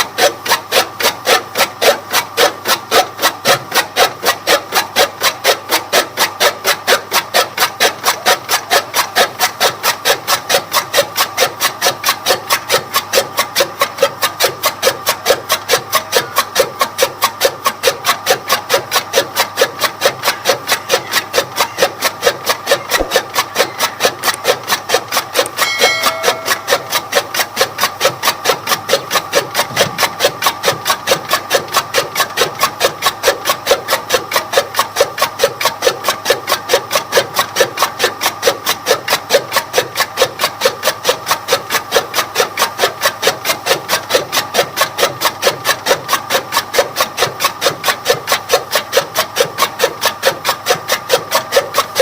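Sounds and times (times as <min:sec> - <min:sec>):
chaff cutter blades chopping: 0:00.0 - 0:52.0
machine hum: 0:20.2 - 0:27.4
brief higher tone: 0:25.6 - 0:26.7.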